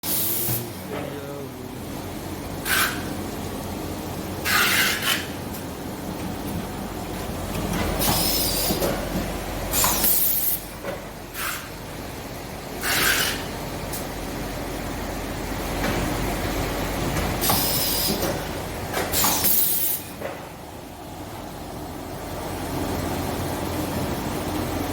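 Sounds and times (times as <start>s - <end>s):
machine hum: 0.0s - 19.2s.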